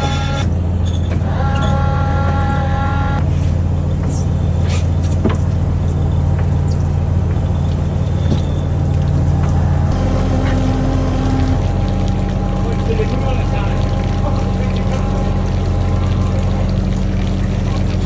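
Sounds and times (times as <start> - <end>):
boat engine humming: 0.0 - 18.0
high-pitched whine: 7.5 - 17.8.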